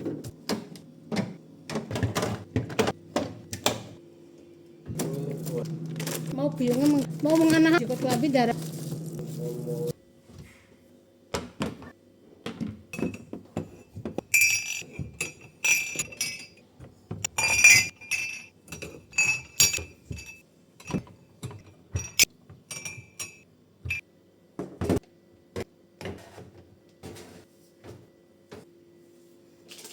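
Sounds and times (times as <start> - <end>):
drinking glasses clinking: 17.3 - 21.0.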